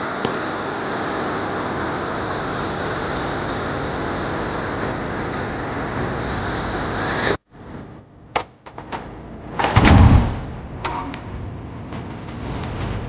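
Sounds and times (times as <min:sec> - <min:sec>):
ice avalanche roaring: 0:00.0 - 0:07.4.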